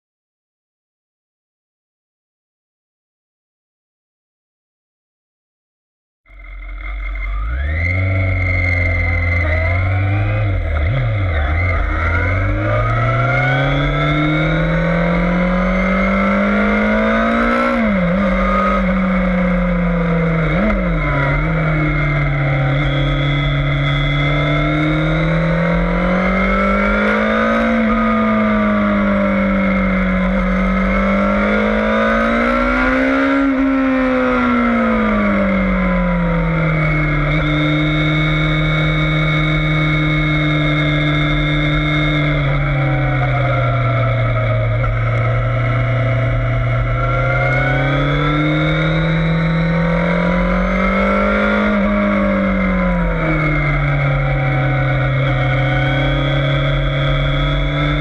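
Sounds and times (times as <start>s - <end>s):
motorcycle engine revving: 6.3s - 58.0s.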